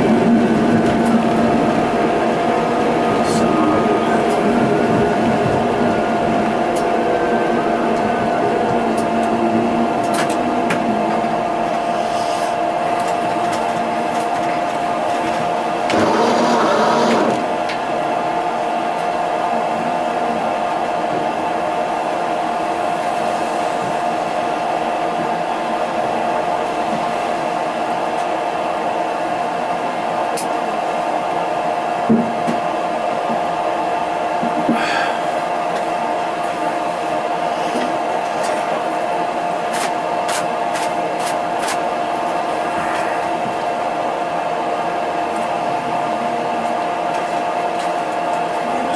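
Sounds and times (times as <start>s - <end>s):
tram electric whine: 0.0s - 48.9s
tram rolling noise: 0.0s - 48.9s
rushing noise: 15.8s - 17.6s, 42.0s - 45.3s.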